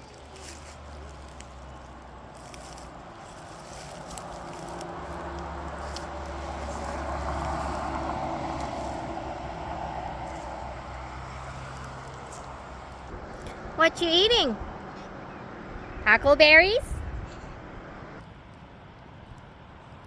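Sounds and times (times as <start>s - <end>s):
car driving past: 0.0s - 13.8s.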